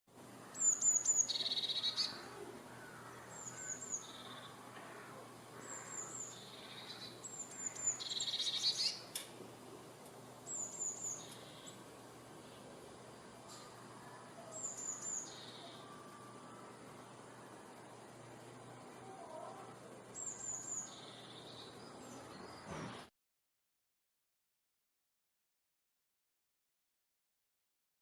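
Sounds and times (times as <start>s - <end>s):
small songbird singing: 0.4s - 9.2s, 10.4s - 12.8s, 13.5s - 17.7s, 20.1s - 23.1s.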